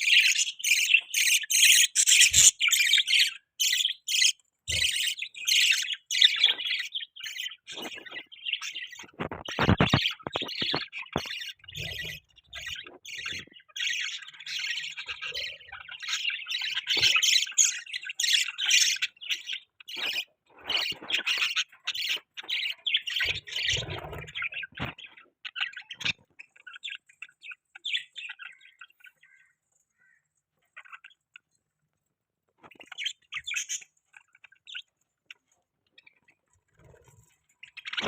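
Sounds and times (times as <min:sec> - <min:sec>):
budgerigars chirping and squawking: 0:00.0 - 0:38.0.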